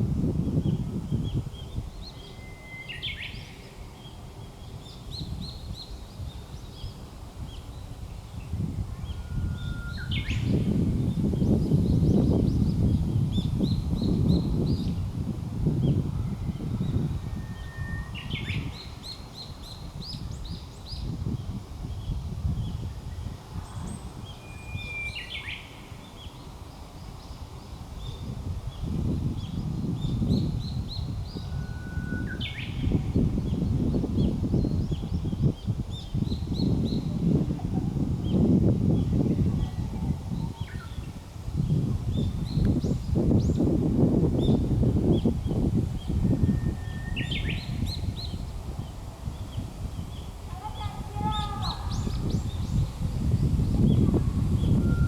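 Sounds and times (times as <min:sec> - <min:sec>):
low wind rumble: 0:00.0 - 0:55.0
bird singing: 0:00.6 - 0:07.0, 0:09.0 - 0:15.0, 0:15.8 - 0:21.2, 0:22.8 - 0:26.4, 0:27.0 - 0:37.3, 0:44.4 - 0:54.0
bird singing whistled song: 0:02.0 - 0:03.6, 0:09.0 - 0:10.8, 0:15.8 - 0:21.1, 0:24.2 - 0:25.8, 0:29.4 - 0:35.2, 0:46.2 - 0:48.4, 0:54.6 - 0:55.0.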